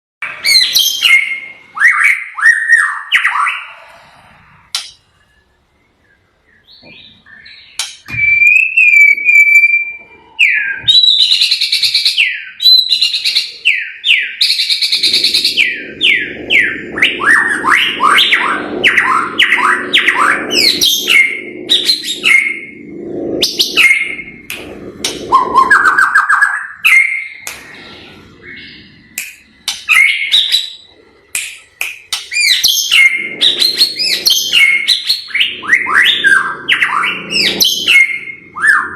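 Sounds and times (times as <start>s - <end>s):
bird singing whistled phrases: 0.4s - 3.8s, 6.0s - 22.8s, 25.3s - 27.5s, 29.8s - 30.9s, 32.2s - 38.9s
low hum: 14.8s - 30.1s, 30.7s - 38.9s.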